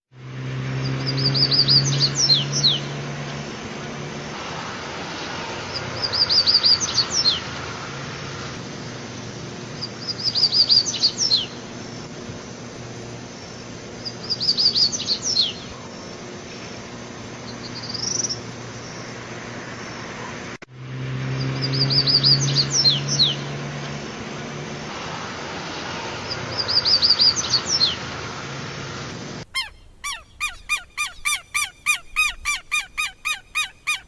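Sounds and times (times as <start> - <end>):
songbird singing: 0.8 - 3.0, 9.8 - 11.7, 13.4 - 16.2, 17.4 - 19.1, 21.5 - 23.5, 29.4 - 34.0.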